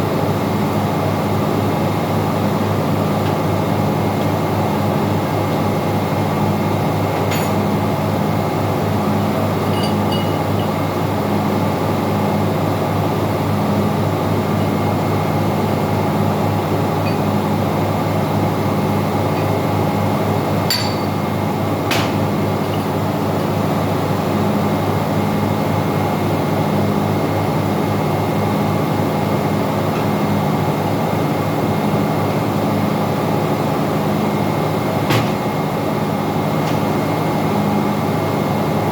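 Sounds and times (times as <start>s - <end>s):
engine-room machinery drone: 0.0s - 38.9s
sharp metallic clinks: 9.7s - 10.8s, 20.7s - 21.2s.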